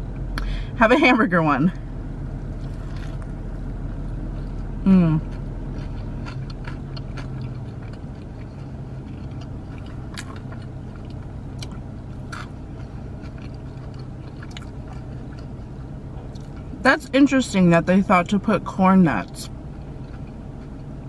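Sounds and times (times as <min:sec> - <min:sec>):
steady low hum: 0:00.0 - 0:21.0
person chewing burger: 0:02.5 - 0:03.4, 0:04.0 - 0:16.8.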